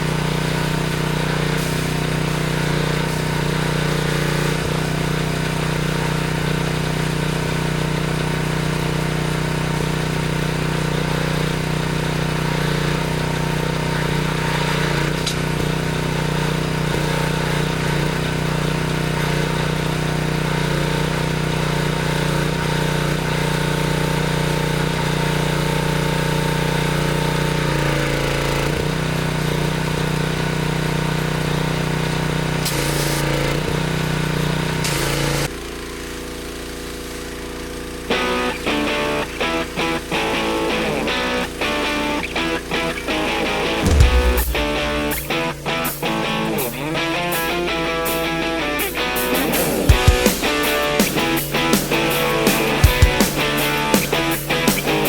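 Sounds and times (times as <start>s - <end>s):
pressure washer spray hiss: 0.0s - 6.0s, 49.3s - 55.0s
small gas engine running: 0.0s - 45.0s, 48.0s - 55.0s.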